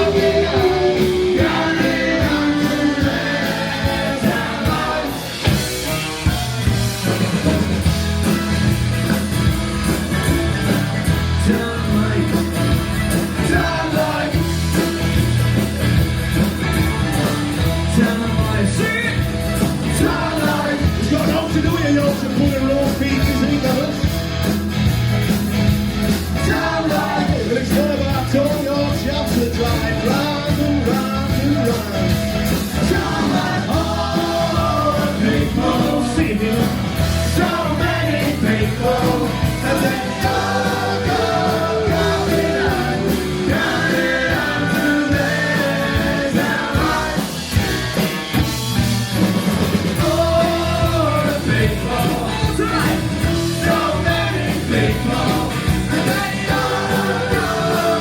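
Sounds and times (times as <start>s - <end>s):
person singing: 0.0s - 5.4s, 50.0s - 58.0s
live rock band playing: 0.0s - 58.0s.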